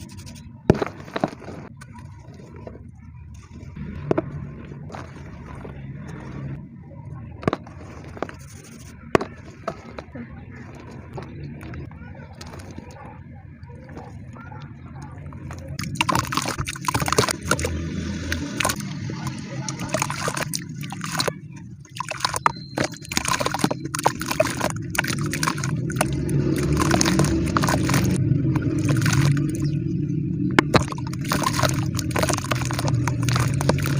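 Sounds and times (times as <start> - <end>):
water sloshing: 0.0 - 33.9
cement crumbling in water: 15.4 - 21.3, 21.9 - 29.8, 30.6 - 33.9.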